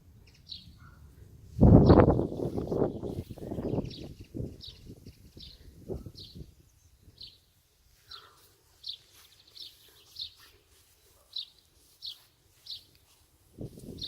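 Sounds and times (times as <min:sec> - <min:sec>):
low rumble of wind: 0:00.0 - 0:07.4, 0:13.4 - 0:14.0
bird chirping: 0:00.2 - 0:01.0, 0:01.8 - 0:13.2.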